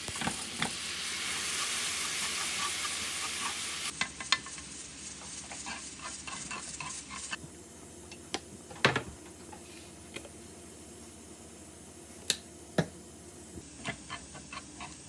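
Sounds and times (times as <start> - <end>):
food sizzling in a frying pan: 0.0 - 7.4, 13.6 - 15.0.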